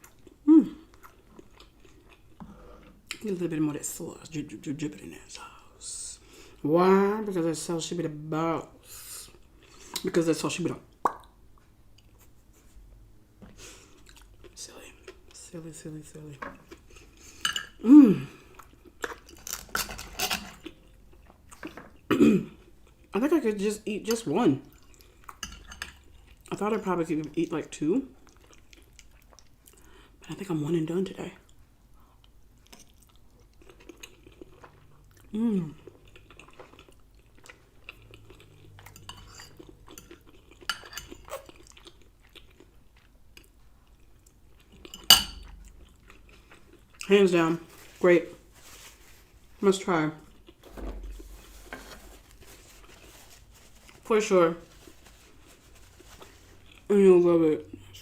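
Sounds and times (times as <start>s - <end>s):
person chewing food: 0.0s - 3.2s, 13.7s - 15.4s, 16.6s - 19.6s, 20.5s - 23.1s, 24.6s - 26.5s, 28.2s - 30.0s, 31.5s - 47.1s, 50.2s - 54.0s, 54.8s - 56.9s.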